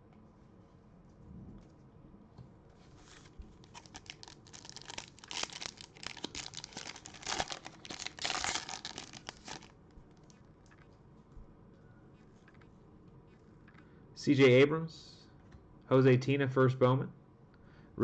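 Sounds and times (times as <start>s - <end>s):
foil wrapper tearing and crinkling: 3.0s - 9.7s.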